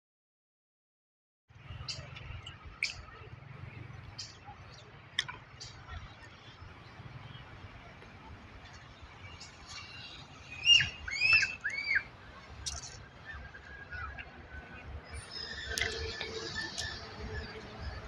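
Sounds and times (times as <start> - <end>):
bird calling: 9.2 - 18.0.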